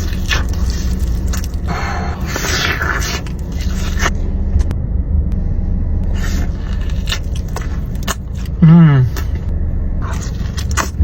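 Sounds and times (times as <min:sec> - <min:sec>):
crunchy biting and chewing: 0:00.0 - 0:04.2, 0:06.1 - 0:09.4, 0:10.0 - 0:11.0
low rumble: 0:00.0 - 0:11.0.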